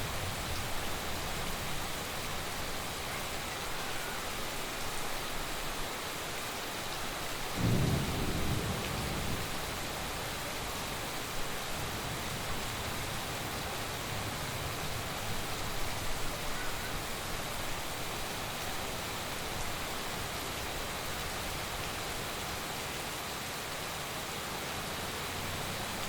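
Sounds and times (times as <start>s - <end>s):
heavy rain falling: 0.0s - 26.0s
thunder rumbling: 7.6s - 10.2s.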